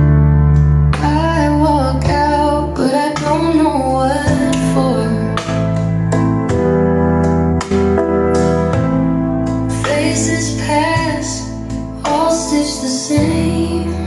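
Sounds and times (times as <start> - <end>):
keyboard: 0.0 - 14.0
steady bass: 0.0 - 14.0
woman singing: 0.9 - 5.6, 9.7 - 14.0.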